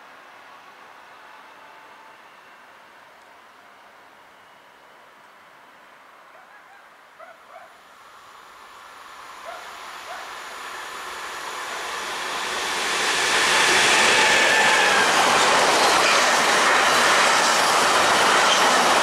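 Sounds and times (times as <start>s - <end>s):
train wheel and rail rush: 7.8s - 19.0s.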